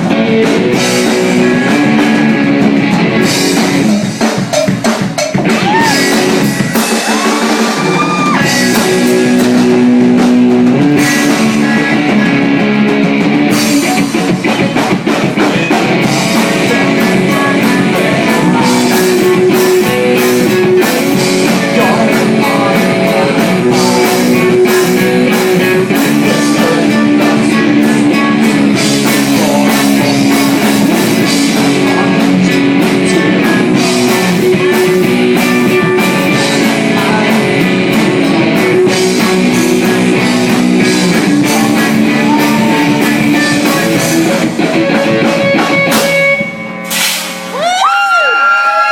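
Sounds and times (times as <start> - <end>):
rock band playing live: 0.0 - 48.9.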